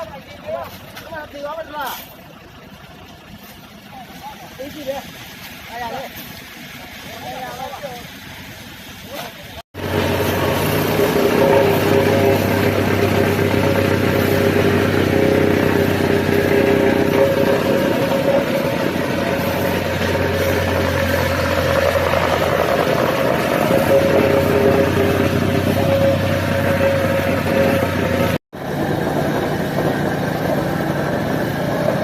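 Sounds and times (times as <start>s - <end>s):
machine engine running: 9.8s - 32.0s.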